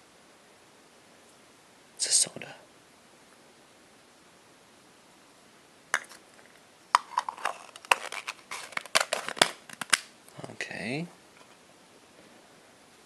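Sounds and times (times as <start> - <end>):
plastic toys clicking and clattering: 6.4 - 10.0.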